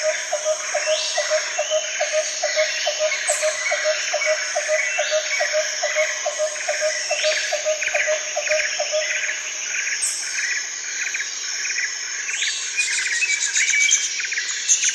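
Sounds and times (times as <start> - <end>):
bird calls: 0.0 - 10.6
insects buzzing: 0.0 - 14.9
rhythmic insect chirp: 0.0 - 14.9.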